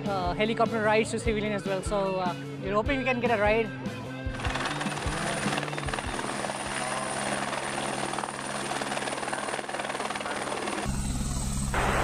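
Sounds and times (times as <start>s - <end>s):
helicopter engine and rotor drone: 4.1s - 12.0s
high whine: 10.9s - 12.0s.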